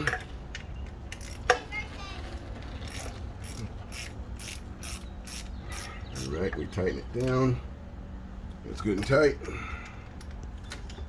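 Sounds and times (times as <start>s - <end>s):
ratcheting wrench clicking: 1.1s - 1.6s, 2.8s - 6.3s.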